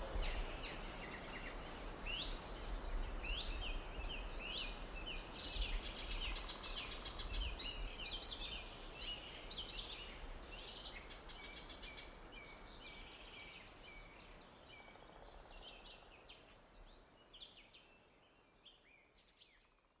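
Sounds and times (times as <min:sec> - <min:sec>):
small birds chirping and singing: 0:00.0 - 0:20.0.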